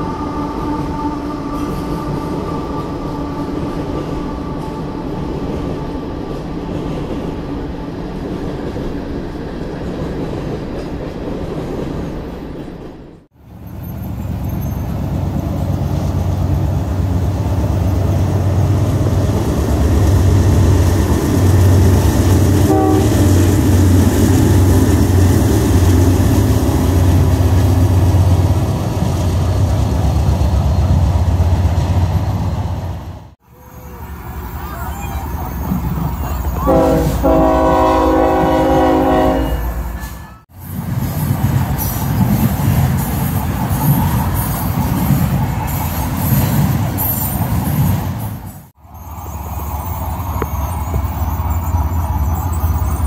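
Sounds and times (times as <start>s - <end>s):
diesel locomotives rumbling: 0.0s - 53.0s
train horn chord: 22.6s - 23.4s, 36.6s - 40.5s.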